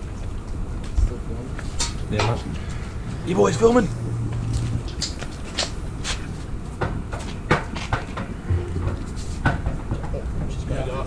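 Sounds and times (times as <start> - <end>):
steady low hum: 8.3 - 10.1.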